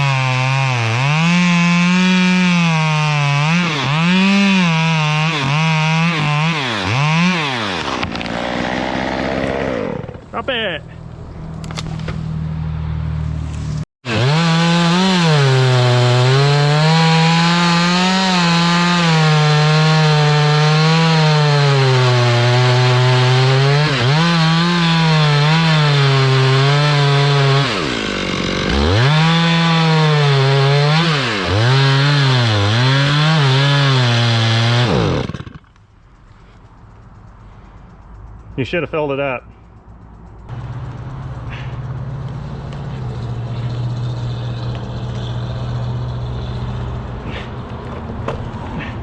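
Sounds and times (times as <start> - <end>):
chainsaw cutting wood: 0.0 - 10.3, 14.1 - 35.8.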